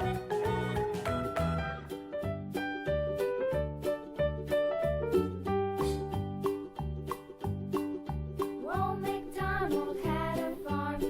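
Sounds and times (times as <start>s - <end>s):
upbeat children's music: 0.0s - 11.0s.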